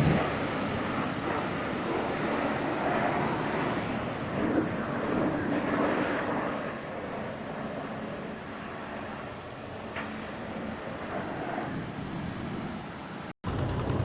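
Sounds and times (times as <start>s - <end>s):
car-wash equipment rushing: 0.0s - 6.9s.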